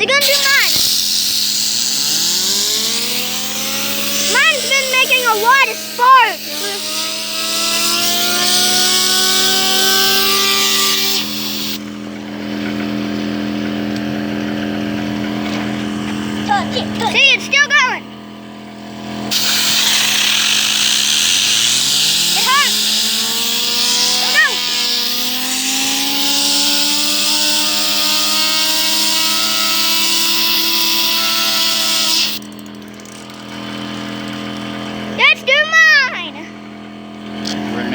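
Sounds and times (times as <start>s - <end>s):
fidget spinner whine: 0.0s - 18.0s, 18.7s - 36.4s
steady low hum: 0.0s - 32.4s
compressed air hissing: 0.2s - 11.8s, 19.3s - 32.4s.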